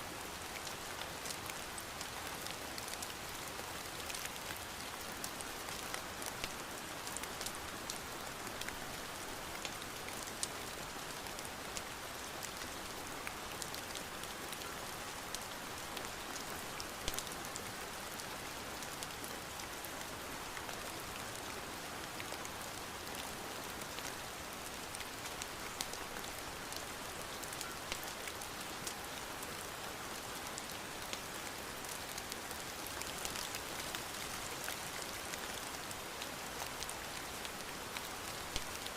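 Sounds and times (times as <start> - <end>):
rain pattering: 0.1 - 38.9.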